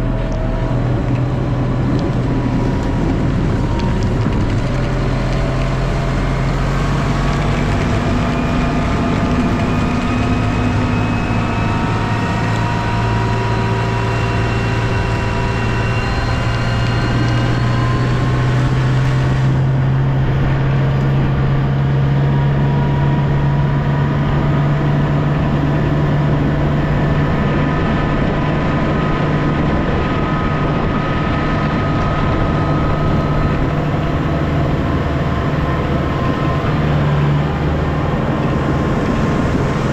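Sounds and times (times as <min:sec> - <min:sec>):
vehicle engine running under load: 0:00.0 - 0:39.9.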